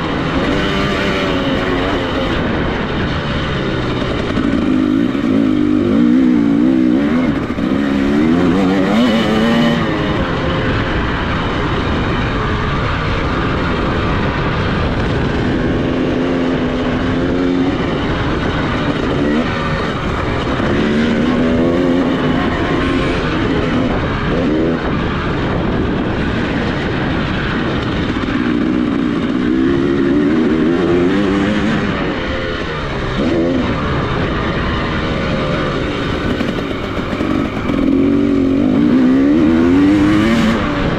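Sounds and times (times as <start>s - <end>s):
dirt bike engine revving: 0.0s - 40.9s
rushing noise: 0.0s - 40.9s.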